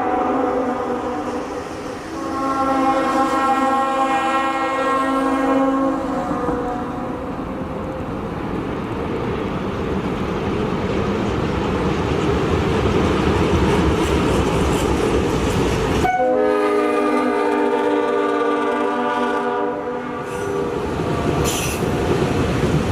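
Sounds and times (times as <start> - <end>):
train horn chord: 0.0 - 8.0, 16.0 - 20.9
train rumbling by: 0.0 - 22.9.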